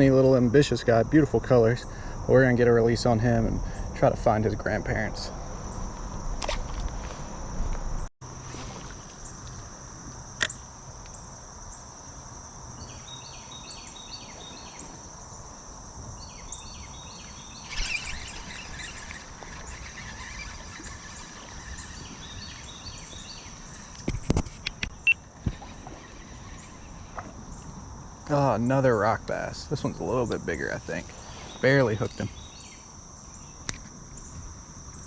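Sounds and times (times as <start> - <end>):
insect drone: 0.0 - 35.0
bird call: 17.1 - 24.1.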